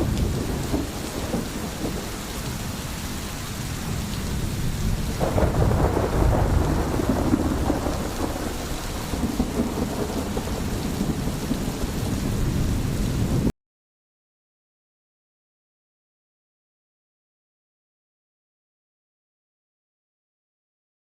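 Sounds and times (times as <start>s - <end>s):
rolling thunder: 0.0s - 13.5s
steady rain: 0.0s - 13.5s.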